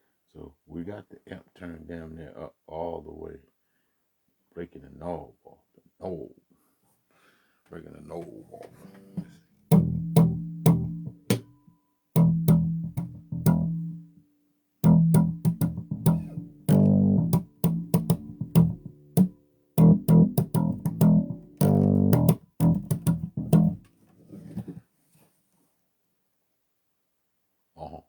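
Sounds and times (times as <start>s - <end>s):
amplified electric bass guitar: 9.1s - 11.4s, 12.2s - 14.2s, 14.8s - 23.8s.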